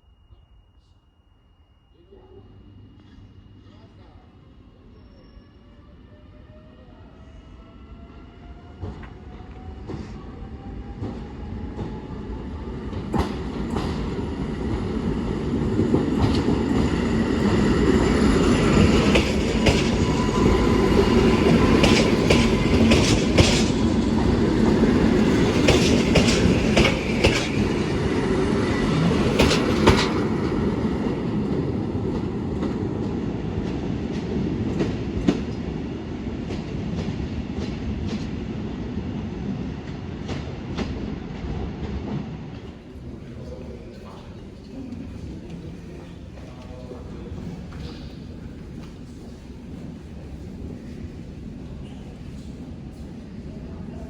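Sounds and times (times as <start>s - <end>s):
train passing: 0.0s - 54.0s
train wheels clicking over rail joints: 12.9s - 31.5s.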